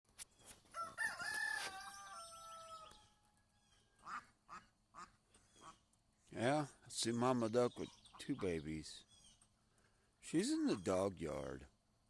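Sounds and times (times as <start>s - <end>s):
rooster crowing: 0.8s - 3.4s.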